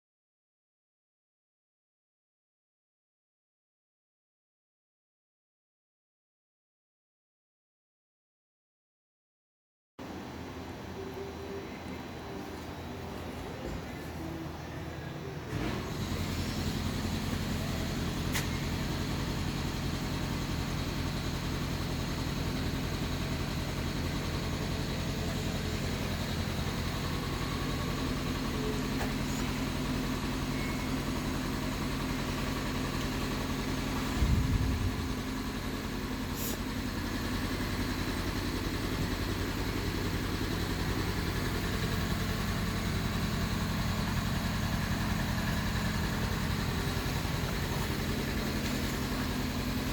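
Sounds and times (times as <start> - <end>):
low rumble: 34.1 - 35.4.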